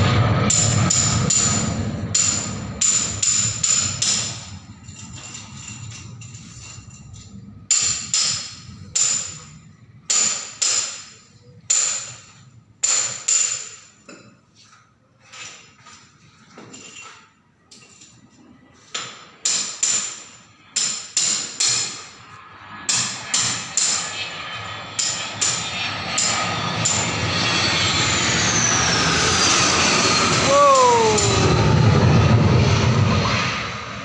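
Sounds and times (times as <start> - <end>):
jet aircraft noise: 0.0 - 10.1, 21.8 - 34.0
sharp ringing knocks: 0.5 - 6.3, 7.7 - 9.5, 10.1 - 14.4, 19.0 - 22.0.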